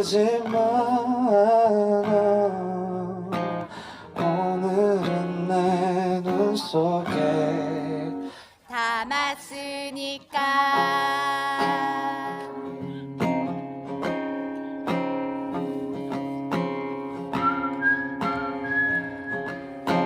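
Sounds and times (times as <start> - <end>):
man singing: 0.0 - 8.3
acoustic guitar strumming: 0.0 - 8.4, 10.3 - 20.0
high whistled melody: 17.3 - 19.8.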